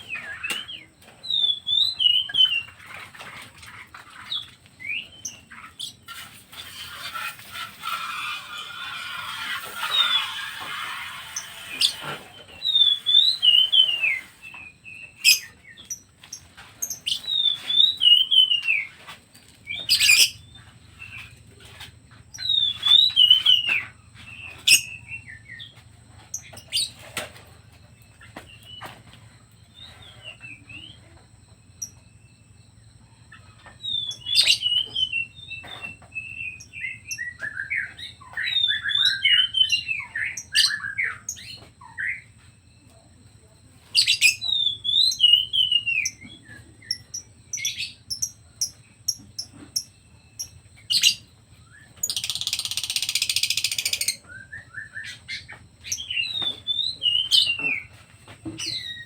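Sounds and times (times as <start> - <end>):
songbird whistling: 0.0 - 2.7, 12.6 - 14.4, 17.0 - 19.0, 22.4 - 25.7, 33.8 - 42.3, 44.0 - 48.3, 50.9 - 58.0.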